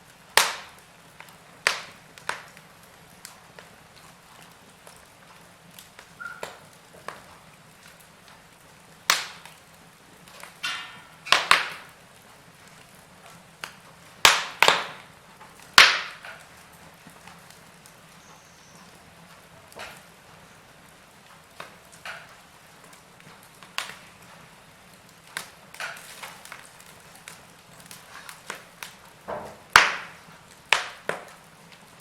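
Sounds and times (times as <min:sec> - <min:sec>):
faint fire hiss: 0:00.0 - 0:32.0
wood fire crackling and popping: 0:00.0 - 0:32.0.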